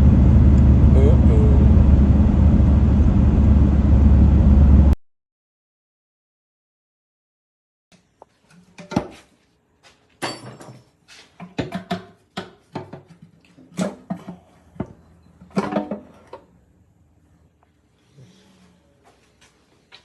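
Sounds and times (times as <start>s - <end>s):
hard objects knocking and clattering: 10.2s - 16.3s.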